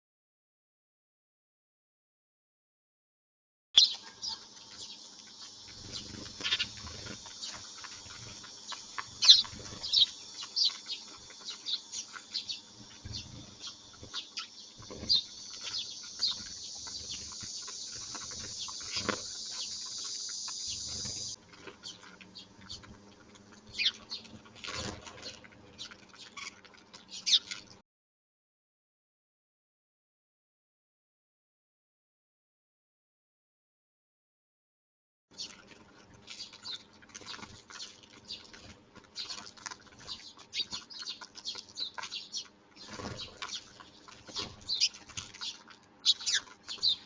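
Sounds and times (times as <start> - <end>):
sparrows chirping: 3.8 - 22.9, 23.7 - 27.7, 36.3 - 47.0.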